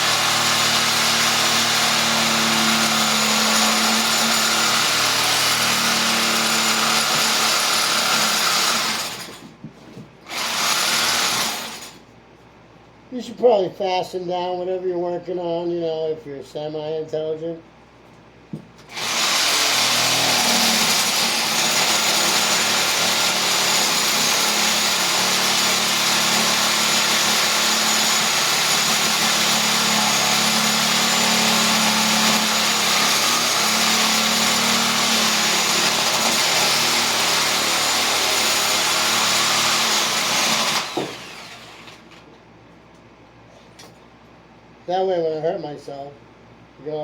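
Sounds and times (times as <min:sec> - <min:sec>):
reciprocating saw cutting wood: 0:00.0 - 0:09.3, 0:18.9 - 0:42.0.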